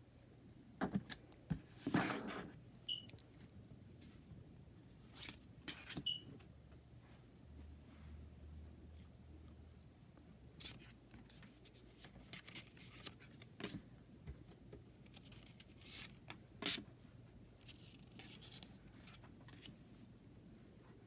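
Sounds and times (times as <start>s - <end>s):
cards and packaging rustling: 10.6s - 13.8s.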